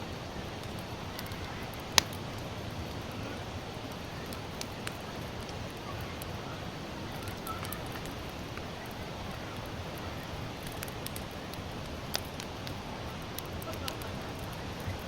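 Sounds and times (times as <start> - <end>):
campfire crackling: 0.1 - 15.0
fire hissing: 0.6 - 7.0.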